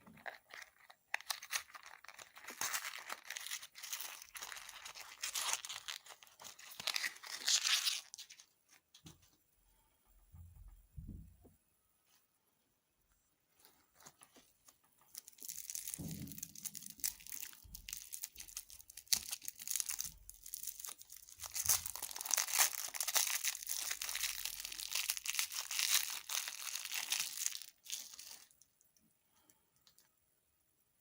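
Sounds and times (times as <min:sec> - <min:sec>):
candy wrapper crackling: 0:00.0 - 0:08.8, 0:13.9 - 0:28.8
soft thumps: 0:10.2 - 0:11.6.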